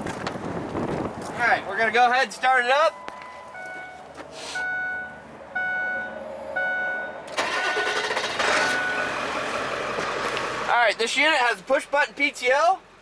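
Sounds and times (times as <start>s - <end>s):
truck cab warning chime: 2.8s - 9.3s
truck engine cranking and starting: 5.6s - 11.3s.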